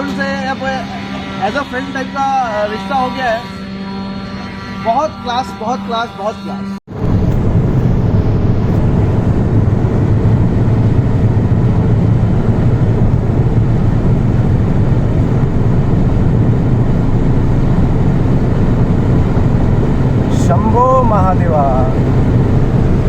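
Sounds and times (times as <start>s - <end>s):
car engine running: 6.9s - 23.0s.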